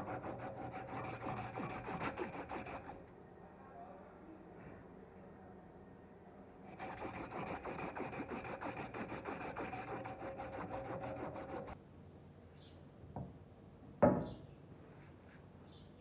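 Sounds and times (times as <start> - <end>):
abrasive rasping on metal blade: 0.0 - 3.0, 6.7 - 11.8.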